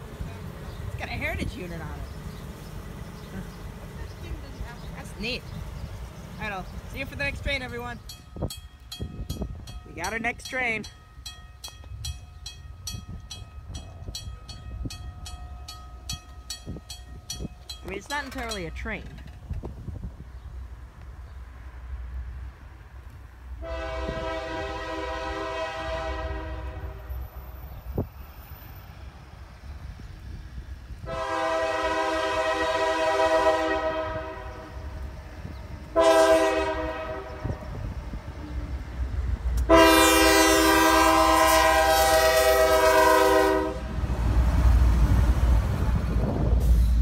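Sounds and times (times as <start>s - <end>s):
locomotive passing rumble: 0.0s - 47.0s
locomotive air horn blasts: 23.6s - 27.1s, 31.0s - 34.9s, 35.9s - 37.7s, 39.6s - 43.9s.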